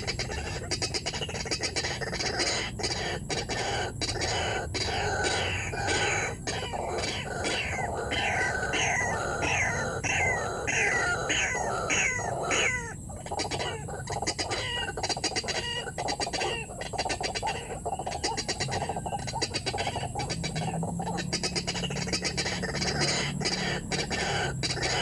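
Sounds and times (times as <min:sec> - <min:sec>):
bird clicking croaking calls: 0:00.0 - 0:25.0.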